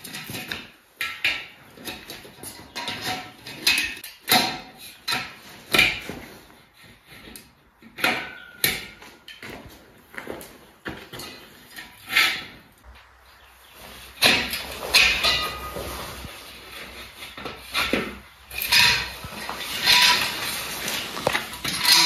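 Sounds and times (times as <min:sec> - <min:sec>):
railing parts knocking and clacking: 0:10.8 - 0:22.0.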